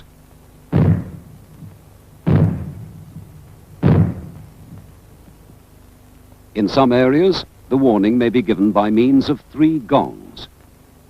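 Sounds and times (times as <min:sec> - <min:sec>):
loud reverberant bangs: 0:00.7 - 0:05.2.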